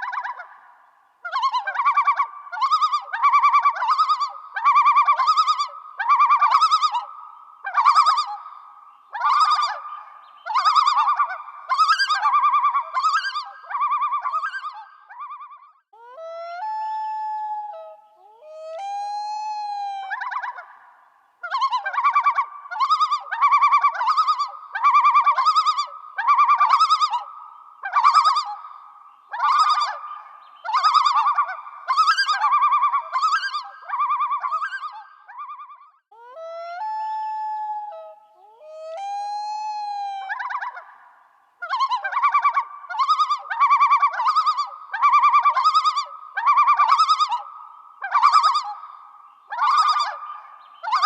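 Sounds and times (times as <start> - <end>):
animal calling: 41.6 - 48.9, 49.5 - 51.0.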